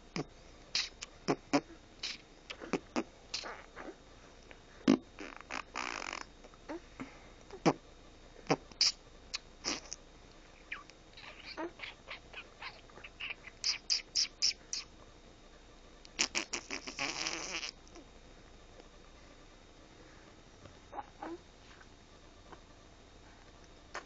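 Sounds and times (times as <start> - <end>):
baby blowing raspberries: 16.2 - 17.8.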